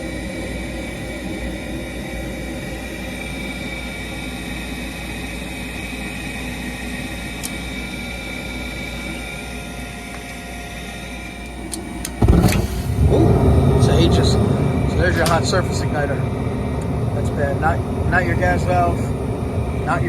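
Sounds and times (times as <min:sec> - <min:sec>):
furnace motor whir: 0:00.0 - 0:20.0
thin high whine: 0:00.0 - 0:20.0.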